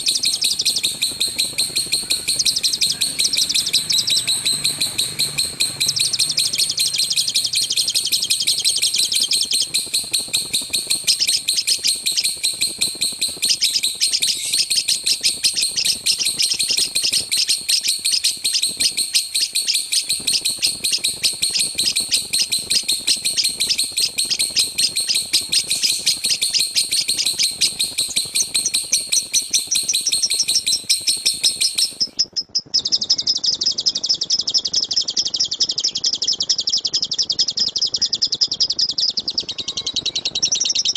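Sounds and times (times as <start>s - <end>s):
lovebird chirping rapidly: 0.0s - 40.9s.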